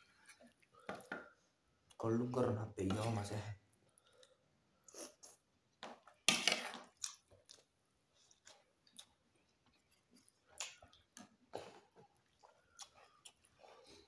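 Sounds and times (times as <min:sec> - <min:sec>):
chewing and wet mouth noises: 0:06.1 - 0:14.0.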